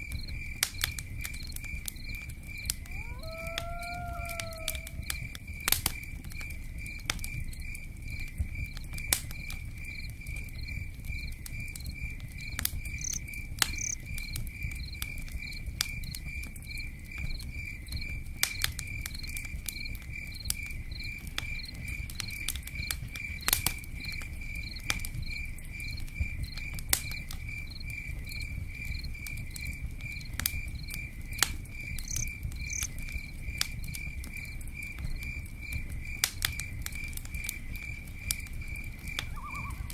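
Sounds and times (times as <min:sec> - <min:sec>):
campfire crackling and popping: 0:00.0 - 0:39.9
cricket chirping: 0:00.0 - 0:39.9.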